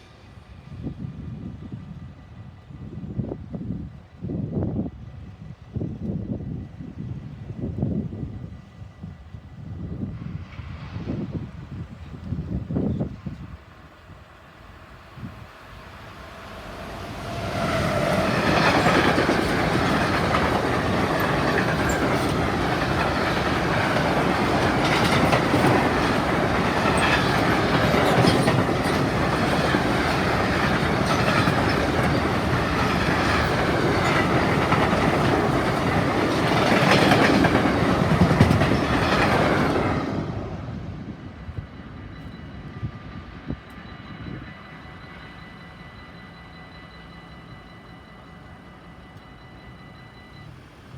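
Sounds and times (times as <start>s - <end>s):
train wheels clicking over rail joints: 15.9s - 40.3s.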